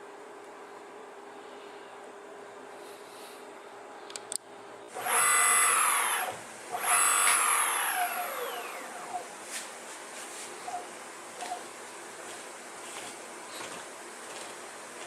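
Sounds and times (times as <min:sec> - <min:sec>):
electric motor whining: 0:04.9 - 0:09.3.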